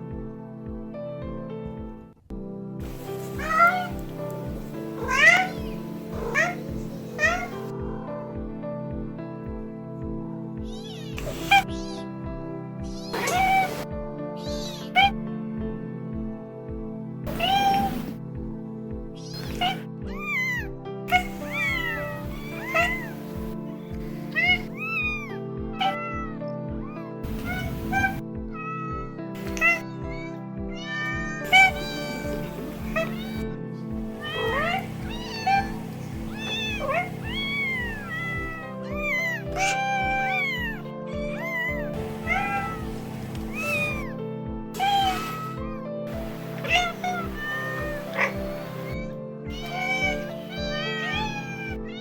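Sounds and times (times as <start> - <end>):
music with steady beat: 0.0 - 52.0
cats meowing: 2.8 - 7.8, 10.6 - 12.0, 12.8 - 15.2, 17.3 - 18.2, 19.2 - 44.2, 44.8 - 52.0.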